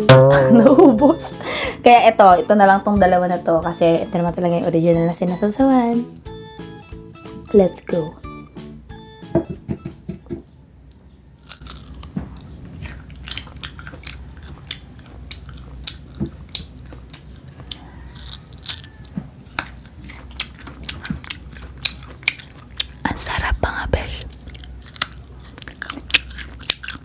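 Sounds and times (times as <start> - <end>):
crunchy bites and chewing: 11.4 - 23.0, 24.3 - 27.0.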